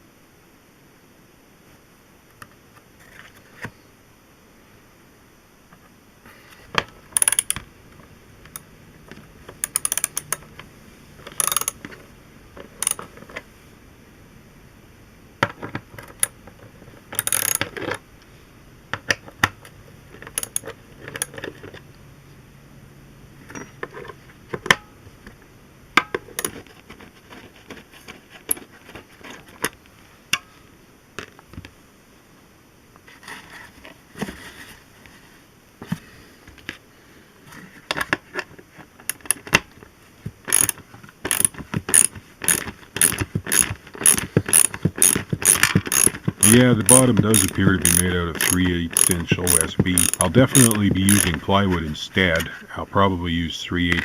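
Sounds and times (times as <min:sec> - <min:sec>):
ratcheting and clicking of hand tools: 0:07.1 - 0:07.6, 0:09.6 - 0:10.6, 0:11.2 - 0:12.0, 0:12.8 - 0:13.4, 0:17.1 - 0:18.0, 0:20.2 - 0:21.8, 0:26.0 - 0:26.6, 0:39.0 - 0:39.6, 0:40.4 - 0:51.6
metal parts clinking: 0:09.6 - 0:10.4, 0:11.3 - 0:11.8, 0:17.1 - 0:18.0, 0:20.2 - 0:21.6, 0:40.5 - 0:51.4.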